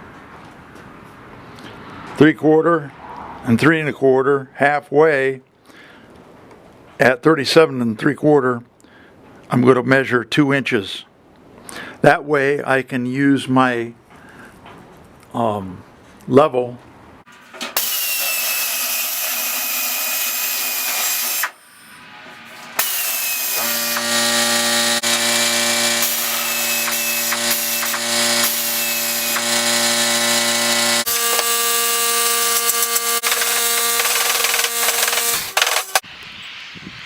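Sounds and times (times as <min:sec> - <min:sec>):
power tool motor whine: 0:17.8 - 0:21.6, 0:22.3 - 0:36.0.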